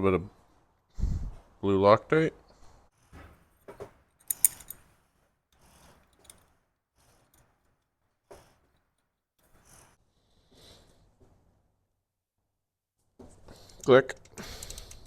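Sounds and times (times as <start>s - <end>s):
metal bolts clicking and clinking: 4.2s - 4.9s, 5.6s - 6.5s.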